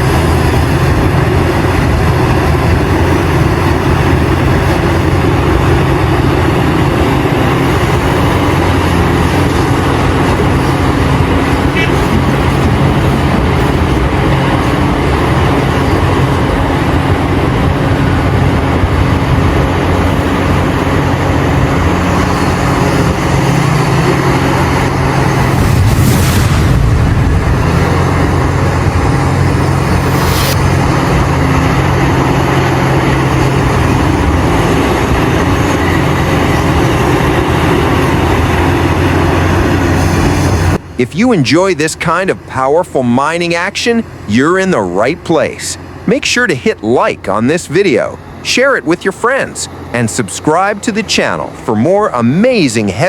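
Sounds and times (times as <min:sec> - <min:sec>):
heavy diesel engines under load: 0:00.0 - 0:53.0
short hisses: 0:29.9 - 0:30.8.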